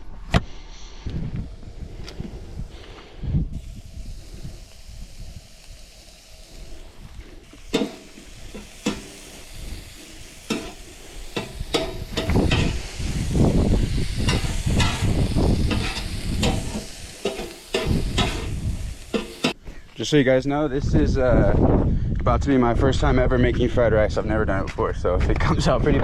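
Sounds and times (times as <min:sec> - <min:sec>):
food sizzling in frying pan: 0:01.5 - 0:19.6
spatula scraping pan: 0:07.6 - 0:09.4, 0:10.4 - 0:12.8, 0:14.2 - 0:19.6.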